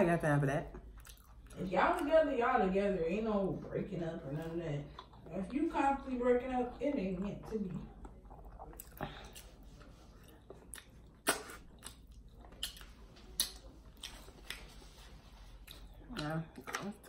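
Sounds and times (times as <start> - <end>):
person chewing food: 0.7 - 1.6, 7.8 - 17.0
mouth clicks and smacks: 10.7 - 13.6.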